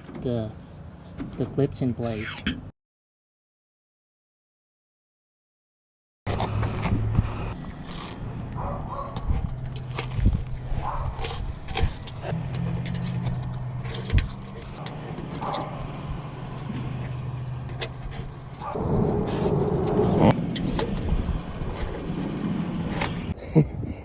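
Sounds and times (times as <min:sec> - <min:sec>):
low engine-like hum: 0:06.3 - 0:23.7.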